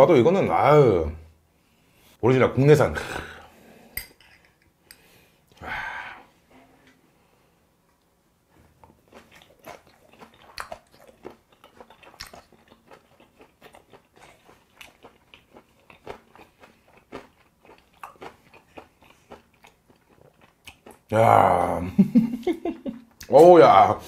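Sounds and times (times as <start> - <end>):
close chewing with crunches: 8.7 - 21.1.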